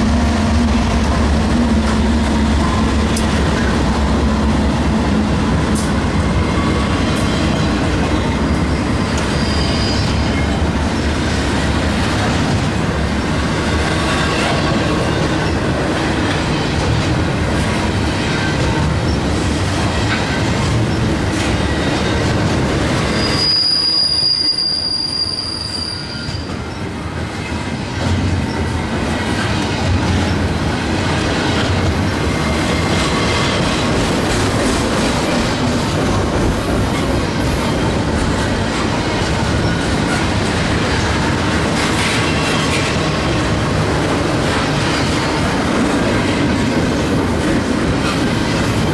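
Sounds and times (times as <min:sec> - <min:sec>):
train cars rumbling on rails: 0:00.0 - 0:48.9
high wheel squeal: 0:08.4 - 0:10.6, 0:23.0 - 0:27.5.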